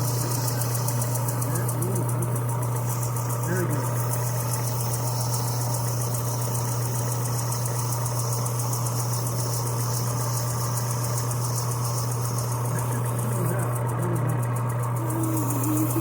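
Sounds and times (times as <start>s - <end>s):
power sander humming: 0.0s - 6.5s, 10.6s - 16.0s.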